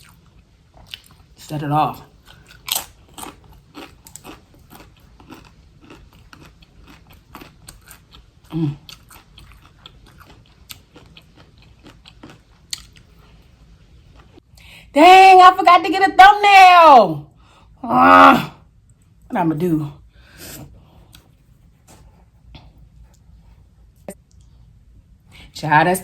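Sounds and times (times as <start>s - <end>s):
tortilla chips crunching: 2.1s - 13.4s.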